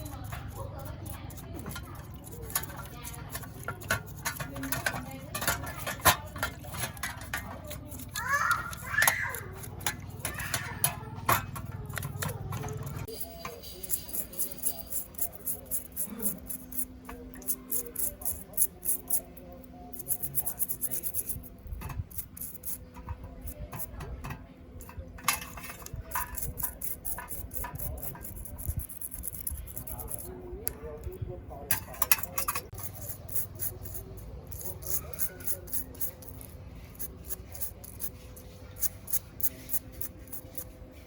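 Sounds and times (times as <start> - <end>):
tools clicking on workbench: 31.7 - 38.1.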